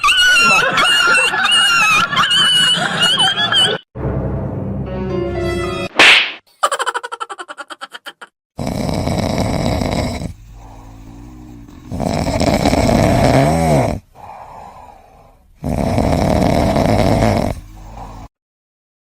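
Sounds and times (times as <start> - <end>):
pet snoring: 8.6 - 18.3
quiet breaths: 9.3 - 13.3, 13.9 - 16.0, 16.8 - 18.3.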